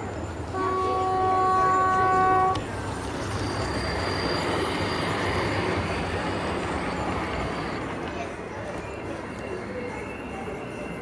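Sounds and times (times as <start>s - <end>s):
model train horn: 0.5s - 2.6s.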